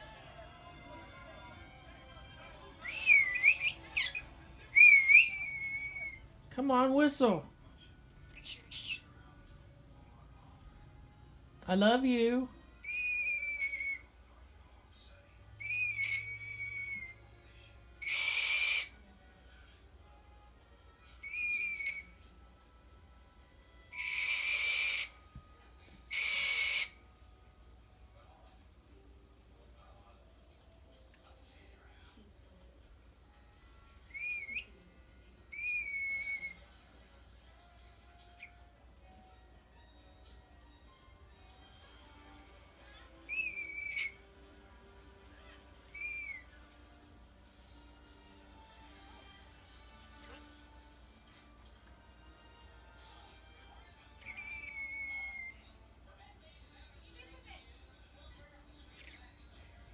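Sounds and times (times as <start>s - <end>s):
soft whistled chirp: 2.8s - 6.2s, 12.8s - 14.1s, 15.6s - 18.9s, 21.2s - 22.2s, 23.9s - 25.2s, 26.1s - 27.0s, 34.1s - 34.8s, 35.5s - 36.7s, 43.3s - 44.3s, 45.9s - 46.5s, 54.2s - 55.7s
parrot calling loudly: 3.0s - 6.2s, 12.8s - 14.1s, 15.6s - 17.2s, 18.0s - 19.0s, 21.2s - 22.2s, 23.9s - 25.2s, 26.1s - 27.0s, 34.1s - 34.7s, 35.5s - 36.6s, 43.3s - 44.3s, 45.9s - 46.5s, 54.2s - 55.6s.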